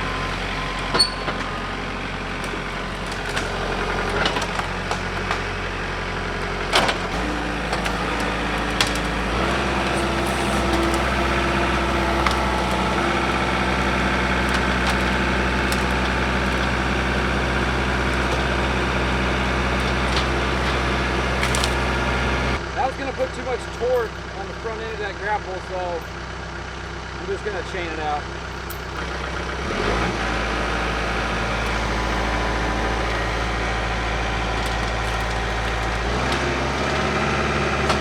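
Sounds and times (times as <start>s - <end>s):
tractor diesel engine running: 0.0s - 38.0s
wood knocking and cracking: 2.3s - 5.6s, 6.7s - 22.6s, 30.5s - 38.0s.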